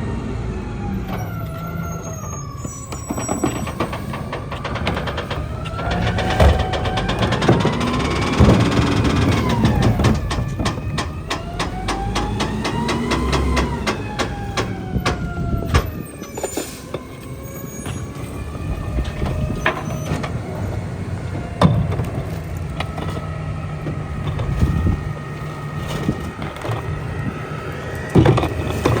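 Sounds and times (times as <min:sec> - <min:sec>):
garbage truck engine running: 0:00.0 - 0:29.0
rapid clicking: 0:03.7 - 0:15.3.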